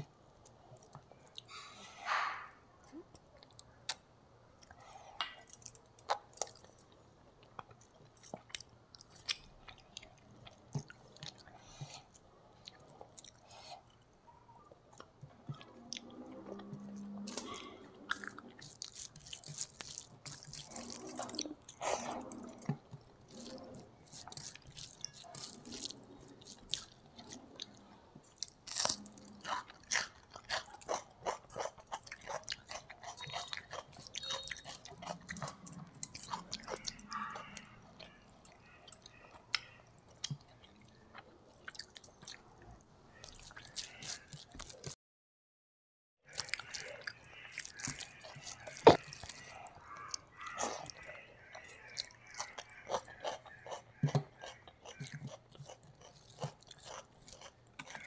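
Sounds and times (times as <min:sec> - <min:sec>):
wet chewing with mouth clicks: 0:02.9 - 0:45.0, 0:46.3 - 0:58.0
crisp crunching of raw onion: 0:17.2 - 0:39.8, 0:43.1 - 0:45.0, 0:46.3 - 0:58.0.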